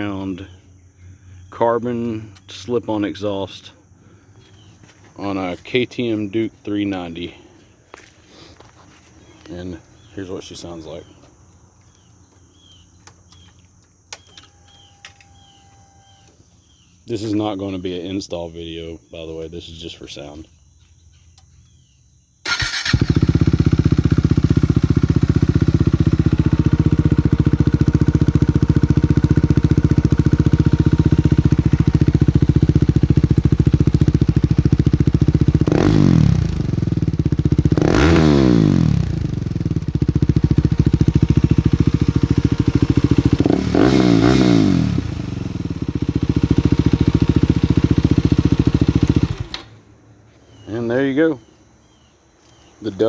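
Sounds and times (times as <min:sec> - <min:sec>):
motorcycle engine idling and revving: 0:22.5 - 0:50.4.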